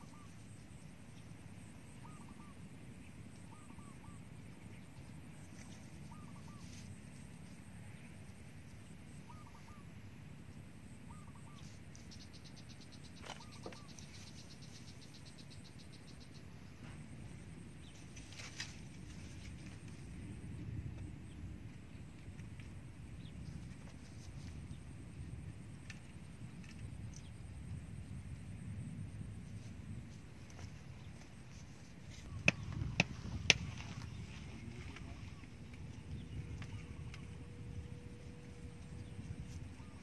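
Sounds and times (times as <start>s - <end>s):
low rumble: 15.1s - 40.0s.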